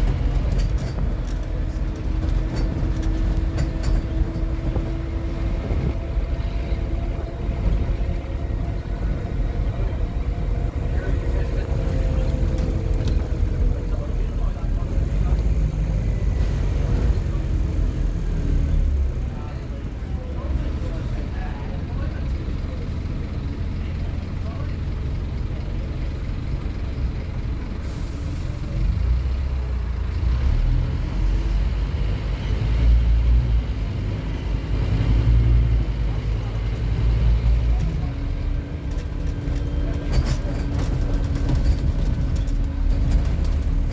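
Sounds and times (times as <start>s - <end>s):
bus diesel engine running: 0.0s - 43.9s
road rumble: 0.0s - 43.9s.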